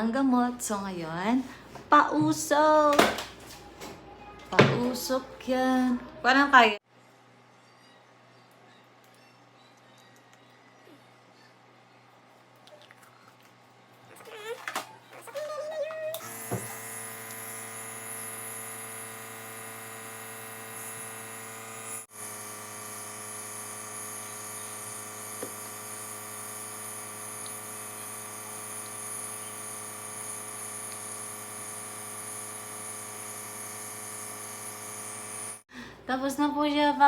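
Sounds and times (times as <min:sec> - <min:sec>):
nebulizer motor hum: 0:16.2 - 0:35.7.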